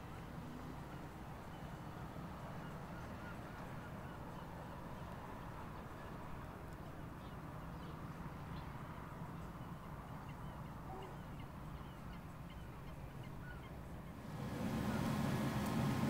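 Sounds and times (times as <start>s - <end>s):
outdoor background hum: 0.0s - 16.0s
even rush of noise: 14.2s - 16.0s.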